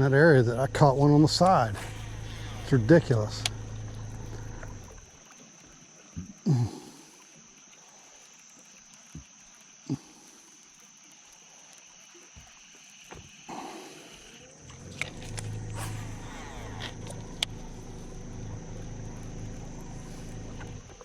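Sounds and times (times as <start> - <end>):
faint high-pitched hum: 0.0 - 7.3, 13.6 - 21.0.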